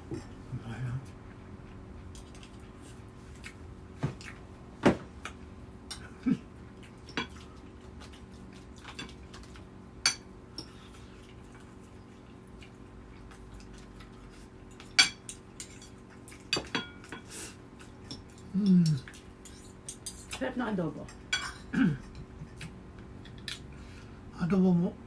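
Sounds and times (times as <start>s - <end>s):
faint steady hum: 0.0s - 25.0s
utensils clinking on plates: 21.3s - 22.3s.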